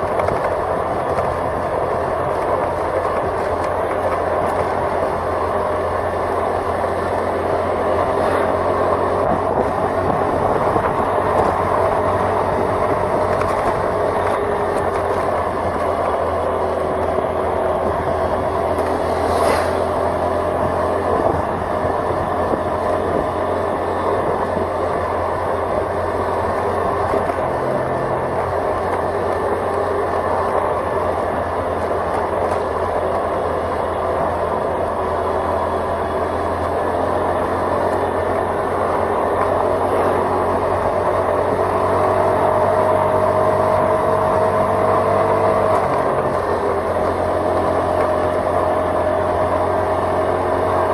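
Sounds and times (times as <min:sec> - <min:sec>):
vehicle engine and road noise: 0:00.0 - 0:50.9
high sweep of sound: 0:18.9 - 0:20.3.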